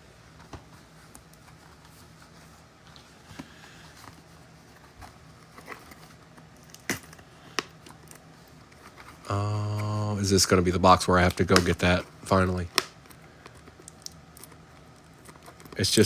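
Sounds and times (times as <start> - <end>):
faint steady hum: 0.0 - 16.0
card packs tapping and clicking: 9.6 - 16.0.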